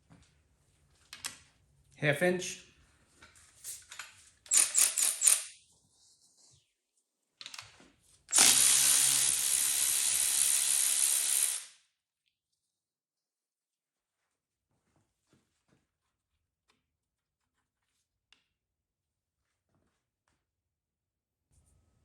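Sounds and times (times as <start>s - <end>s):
metallic clicks from hand tools: 3.9s - 5.5s
handheld power tool running: 4.5s - 5.5s, 8.3s - 11.8s.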